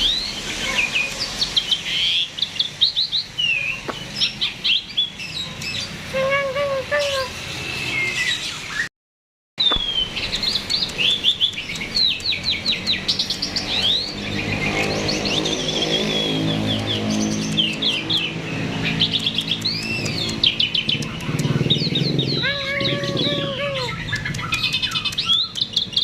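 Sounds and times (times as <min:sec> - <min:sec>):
starling singing chirps and whistles: 0:00.0 - 0:08.9, 0:09.6 - 0:26.0.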